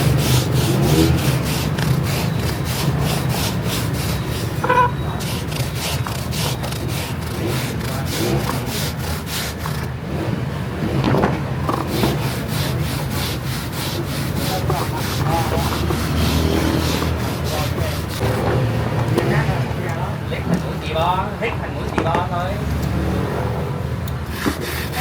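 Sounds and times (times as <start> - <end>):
rhythmic rubbing strokes: 0.0 - 10.3, 11.7 - 19.8, 24.2 - 25.0.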